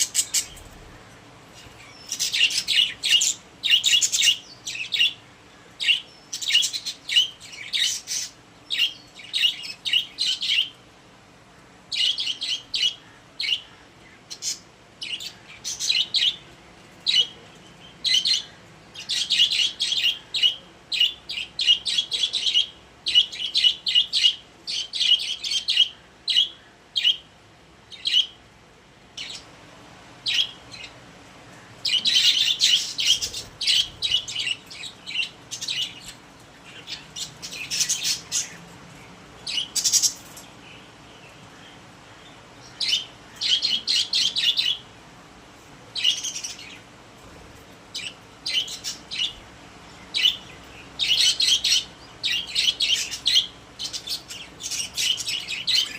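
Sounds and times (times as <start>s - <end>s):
budgerigars chirping and warbling: 0.0s - 5.2s, 5.8s - 10.8s, 31.8s - 38.6s, 39.5s - 44.9s, 46.0s - 47.4s, 48.0s - 55.9s.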